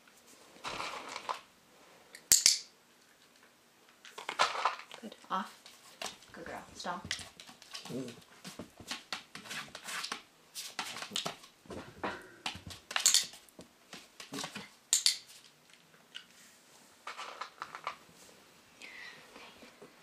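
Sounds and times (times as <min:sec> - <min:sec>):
paws clicking on floor: 0:05.5 - 0:15.4.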